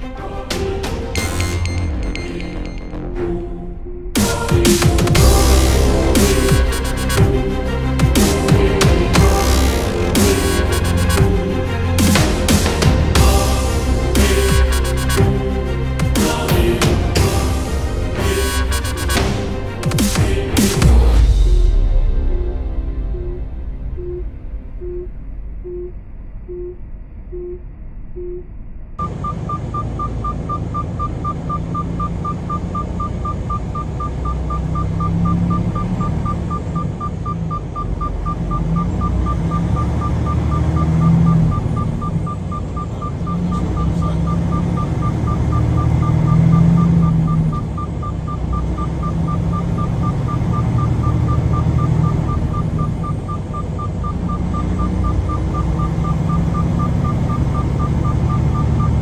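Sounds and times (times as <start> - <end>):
rapid electronic beeps: 22.2 - 59.0
truck cab rumble: 29.0 - 59.0.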